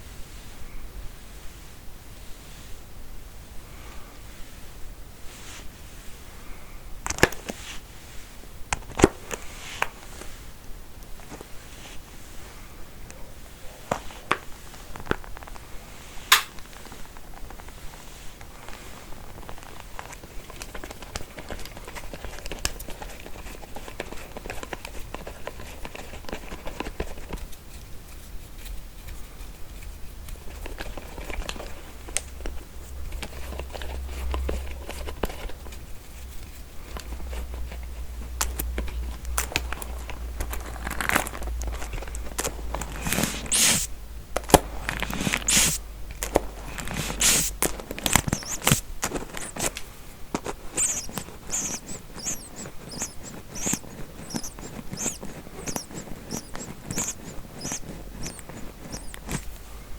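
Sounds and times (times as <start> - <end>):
comb teeth scratched and tapped: 7.0 - 7.6, 16.3 - 59.8
comb sweeping strokes: 42.6 - 44.0, 44.9 - 59.9.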